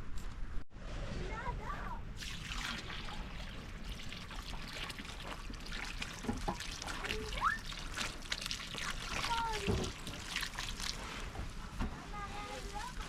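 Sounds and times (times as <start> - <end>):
water running: 2.2 - 11.4.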